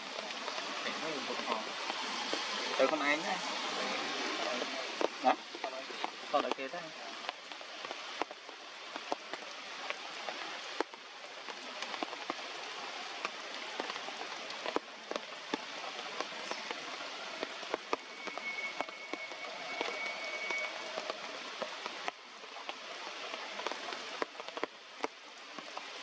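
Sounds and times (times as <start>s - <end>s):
heavy rain falling: 0.0s - 26.0s
raindrops ticking on surfaces: 0.0s - 26.0s
thin steady high tone: 18.0s - 21.3s.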